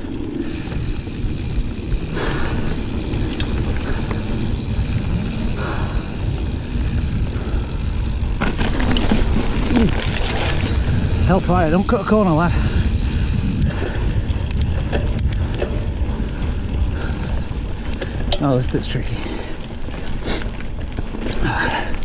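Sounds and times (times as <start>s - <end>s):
wind on microphone: 0.0s - 18.4s
bike clicks and knocks: 0.0s - 22.0s
bike tyres rumbling on dirt: 0.0s - 22.0s
rider breathing or voice: 5.4s - 6.3s, 11.1s - 14.2s, 18.7s - 20.5s, 21.3s - 22.0s.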